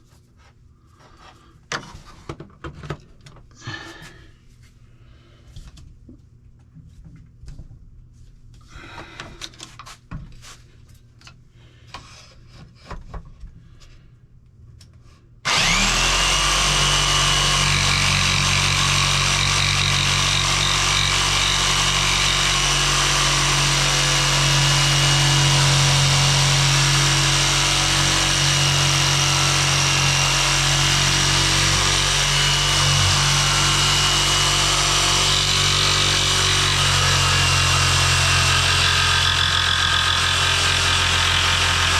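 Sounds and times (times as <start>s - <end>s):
jigsaw cutting wood: 15.4s - 41.9s.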